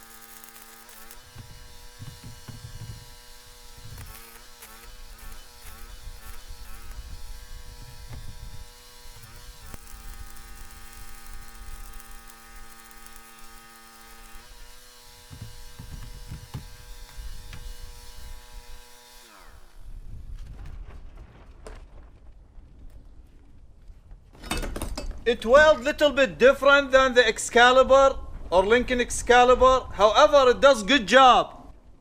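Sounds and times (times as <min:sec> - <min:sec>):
arc welding buzzing and crackling: 0:00.0 - 0:20.2.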